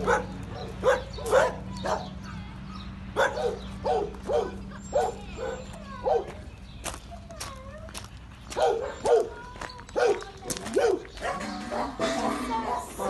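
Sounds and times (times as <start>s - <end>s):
dogs barking: 0.0s - 2.3s, 3.1s - 6.5s, 8.5s - 13.0s.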